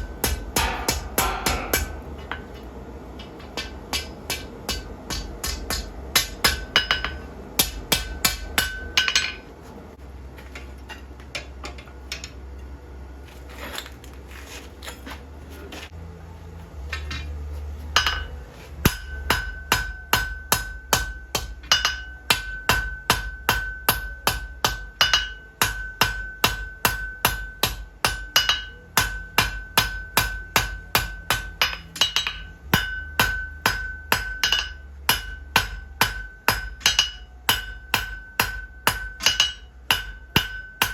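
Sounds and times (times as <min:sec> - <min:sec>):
hammer ringing on anvil: 0:00.0 - 0:02.5, 0:03.2 - 0:09.5, 0:18.0 - 0:40.9
low steady hum: 0:00.0 - 0:40.9.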